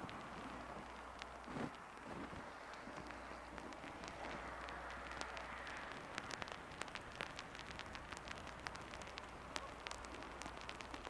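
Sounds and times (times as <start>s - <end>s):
steady hiss: 0.0s - 11.0s
water drops ticking: 0.0s - 11.0s.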